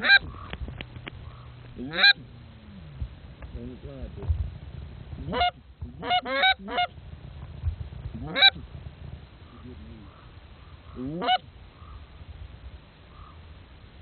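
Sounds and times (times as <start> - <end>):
canada goose honking: 0.0 - 0.6, 1.2 - 2.3, 5.2 - 7.0, 8.2 - 8.6, 9.5 - 12.0
soft goose calls: 0.0 - 3.5, 5.2 - 7.0, 8.0 - 12.3, 13.0 - 13.7.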